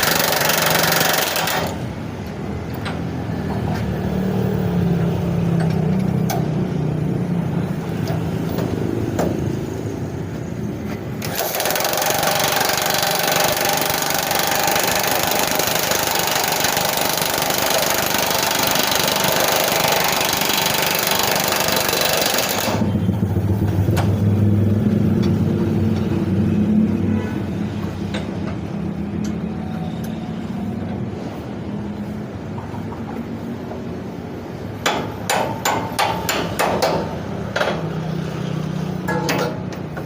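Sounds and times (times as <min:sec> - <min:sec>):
impact wrench rattling: 0:00.0 - 0:01.8, 0:11.2 - 0:22.9
low engine-like drone: 0:22.6 - 0:32.4.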